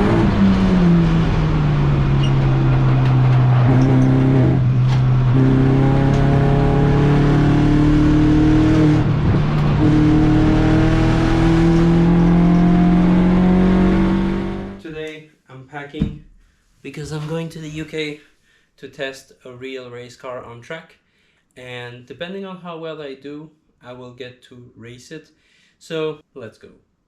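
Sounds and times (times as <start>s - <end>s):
car engine accelerating: 0.0s - 14.8s.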